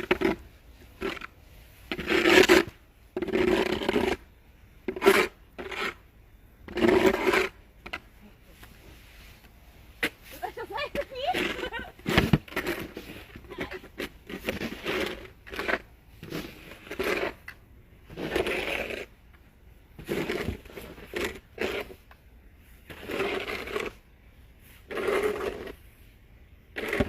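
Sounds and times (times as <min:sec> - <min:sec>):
shovel scraping snow: 0:00.0 - 0:19.2, 0:20.0 - 0:27.0.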